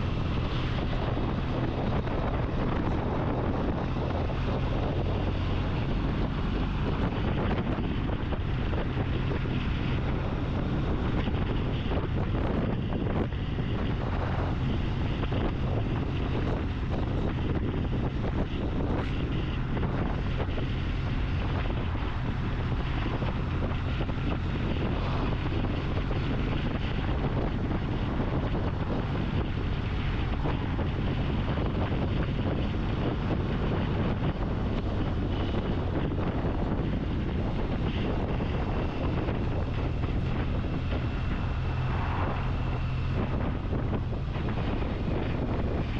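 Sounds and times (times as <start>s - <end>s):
motorcycle engine and road hum: 0.0s - 45.9s
wind rushing over microphone: 0.0s - 45.9s.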